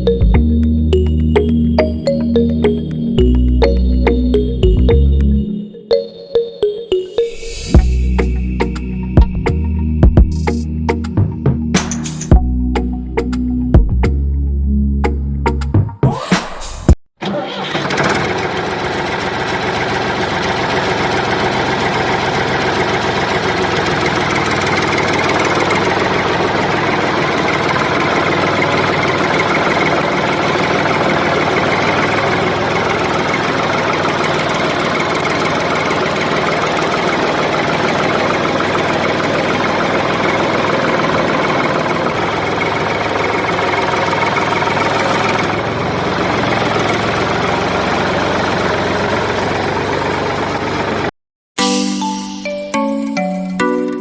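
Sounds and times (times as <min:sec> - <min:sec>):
engine idling with knocking rumble: 0:18.2 - 0:51.1.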